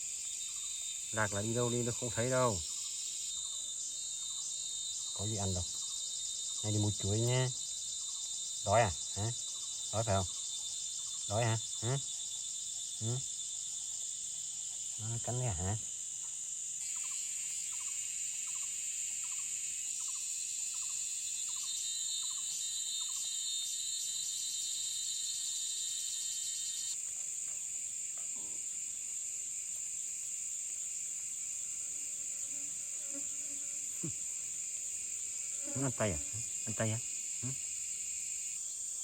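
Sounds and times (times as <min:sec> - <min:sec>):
insects droning high-pitched: 0:00.0 - 0:39.0
second insect chorus: 0:00.0 - 0:39.0.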